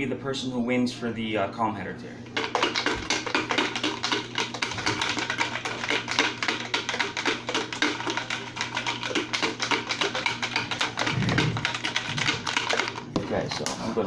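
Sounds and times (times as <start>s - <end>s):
paper slips rattling in a bucket: 2.4s - 13.6s.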